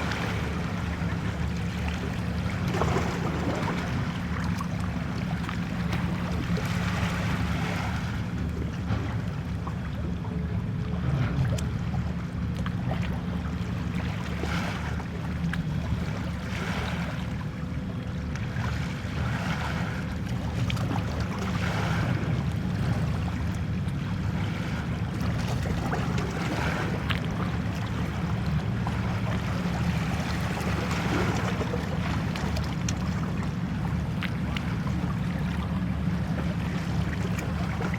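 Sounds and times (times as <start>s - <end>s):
waves washing at shore: 0.0s - 9.2s, 15.9s - 17.5s, 18.5s - 37.9s
wind: 0.0s - 37.9s.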